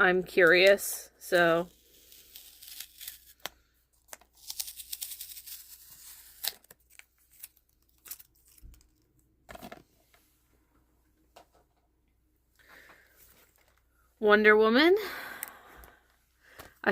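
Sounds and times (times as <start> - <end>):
plastic crinkling and tearing: 1.8 - 9.7.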